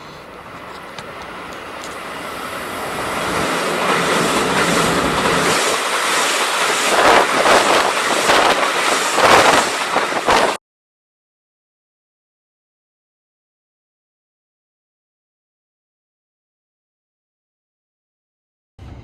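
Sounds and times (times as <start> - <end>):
train approaching: 0.0 - 10.6, 18.8 - 19.0.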